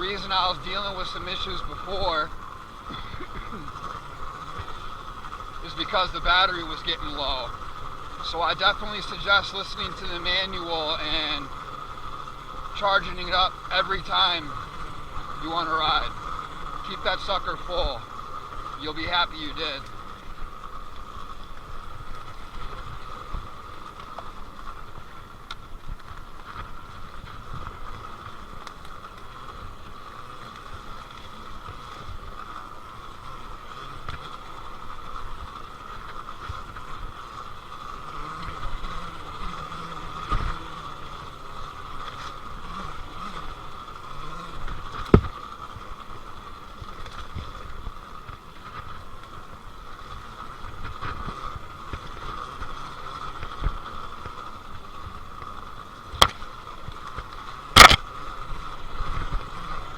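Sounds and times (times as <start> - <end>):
electric motor whine: 0.0 - 59.9
tyre and wind noise: 0.0 - 59.9
sharp knocks: 57.8 - 58.0.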